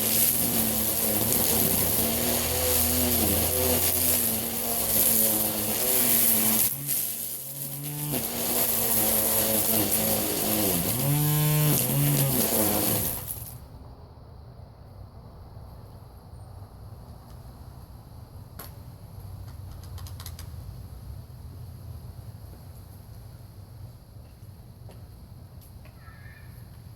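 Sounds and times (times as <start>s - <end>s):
string trimmer whine: 0.0s - 13.6s.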